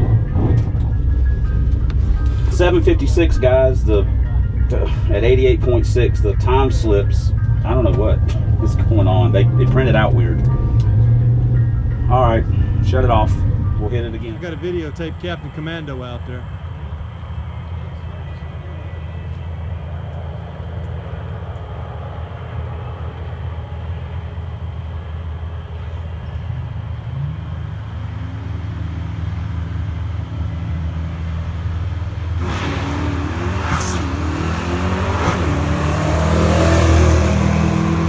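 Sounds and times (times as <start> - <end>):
car accelerating through gears: 0.0 - 17.3, 25.7 - 38.0
car engine idling and revving: 0.0 - 38.0.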